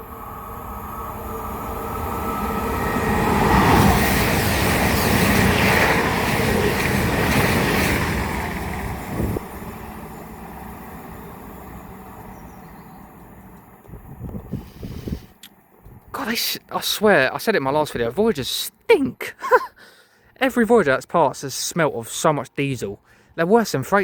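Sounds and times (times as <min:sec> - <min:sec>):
diesel train passing: 0:00.0 - 0:18.7.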